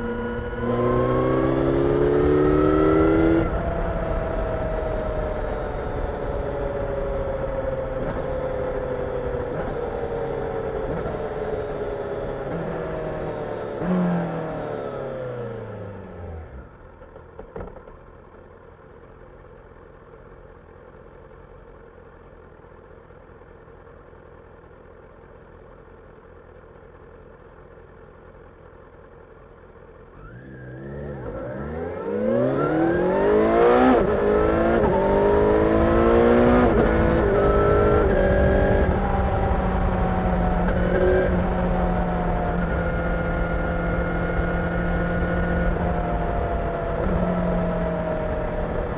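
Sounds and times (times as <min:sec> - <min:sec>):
motorcycle revving and upshifting: 0:00.0 - 0:16.5, 0:30.2 - 0:48.9
motorcycle engine idling: 0:16.0 - 0:30.2.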